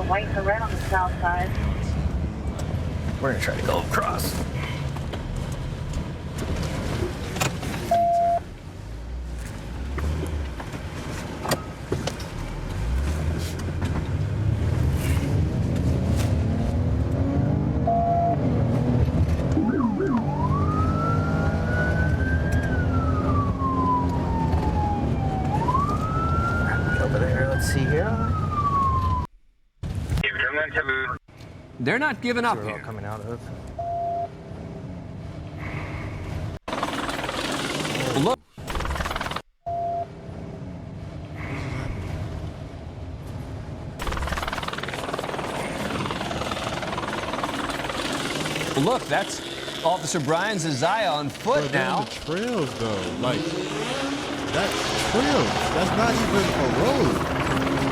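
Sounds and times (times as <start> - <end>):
vehicle engine drone: 0.0 - 29.3, 31.3 - 57.9
police siren wailing: 19.5 - 29.3
helicopter running: 36.7 - 39.4, 44.0 - 57.9.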